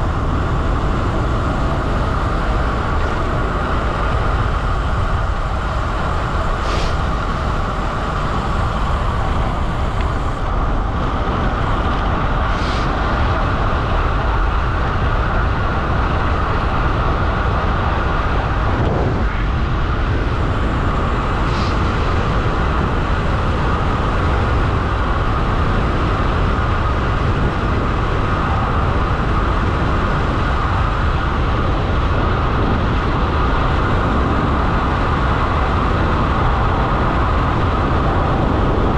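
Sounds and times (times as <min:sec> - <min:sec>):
wind rush over microphone: 0:00.0 - 0:38.9.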